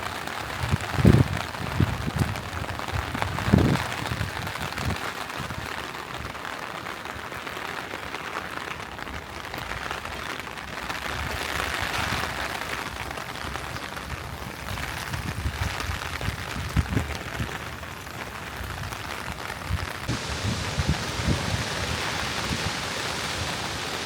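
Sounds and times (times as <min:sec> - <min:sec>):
falling water hiss: 0:20.1 - 0:24.0.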